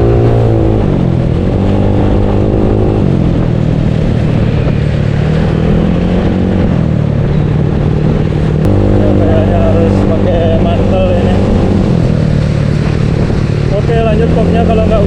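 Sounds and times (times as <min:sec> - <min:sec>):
steady rushing noise: 0:00.0 - 0:15.0
scooter engine running: 0:08.6 - 0:13.8.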